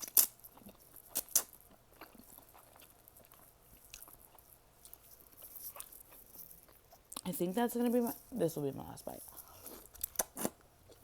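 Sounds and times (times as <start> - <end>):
person chewing food: 0.0 - 7.3, 9.2 - 11.0.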